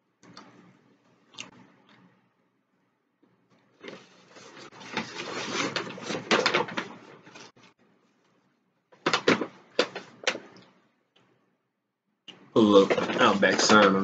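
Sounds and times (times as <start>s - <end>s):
plastic packaging rustling: 3.8s - 7.8s, 12.6s - 14.0s.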